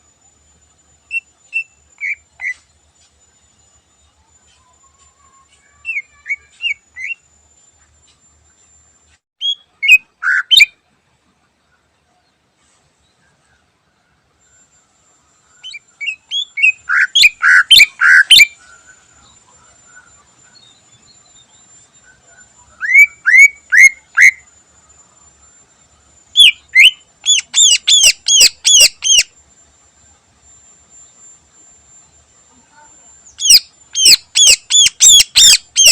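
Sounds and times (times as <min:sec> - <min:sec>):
faint high whine: 0:00.0 - 0:35.9
bird singing sharp repeated notes: 0:09.4 - 0:10.8, 0:15.6 - 0:19.0, 0:26.3 - 0:29.3, 0:33.2 - 0:35.9.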